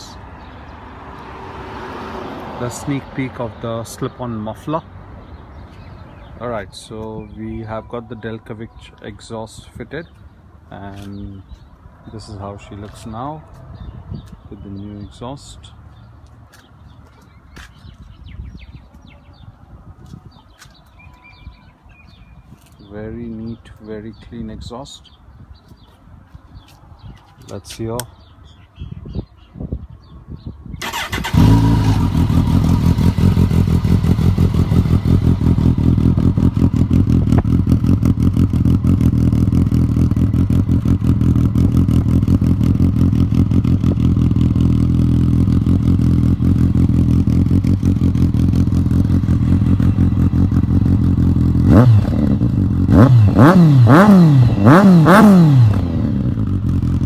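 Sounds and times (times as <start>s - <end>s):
motorcycle engine idling: 30.8s - 57.0s
motorcycle engine revving: 30.8s - 57.0s.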